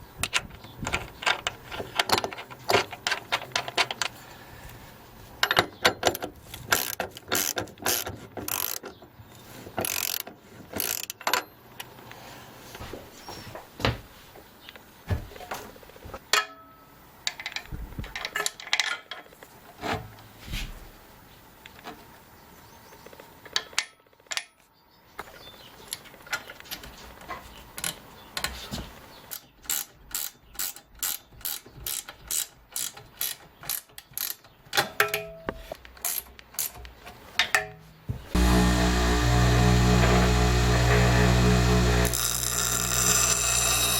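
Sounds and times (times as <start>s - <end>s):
ratchet wrench clicking: 6.7s - 8.8s, 9.8s - 11.2s, 29.3s - 34.4s.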